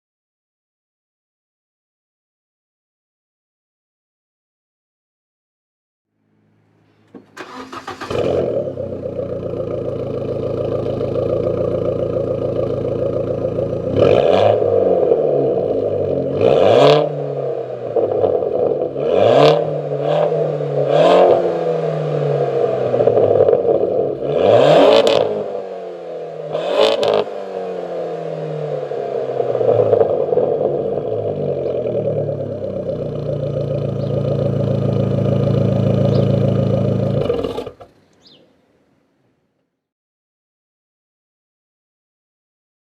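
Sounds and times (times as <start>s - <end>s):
car engine idling and revving: 6.2s - 38.7s.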